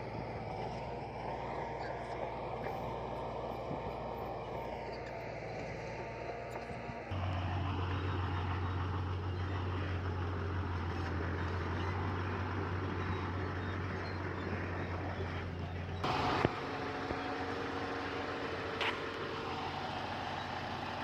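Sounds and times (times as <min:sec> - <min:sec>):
heavy diesel machinery running: 0:00.0 - 0:21.0.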